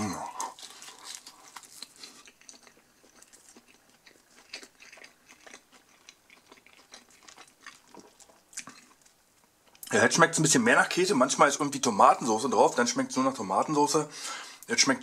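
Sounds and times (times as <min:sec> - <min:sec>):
person chewing food: 0:00.0 - 0:09.9.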